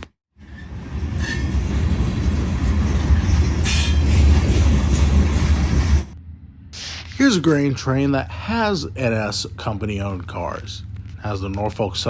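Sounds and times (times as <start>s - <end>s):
high-pitched wheel-on-rail squeal: 0.4s - 6.2s
freight train rolling past: 0.4s - 12.0s.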